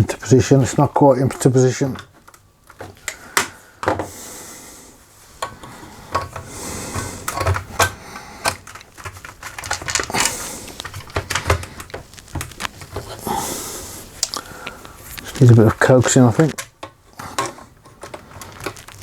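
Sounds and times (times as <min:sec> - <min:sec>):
plastic and metal parts clicking: 0:00.7 - 0:04.0, 0:05.4 - 0:13.2, 0:14.2 - 0:19.0
parts scraping: 0:05.1 - 0:19.0.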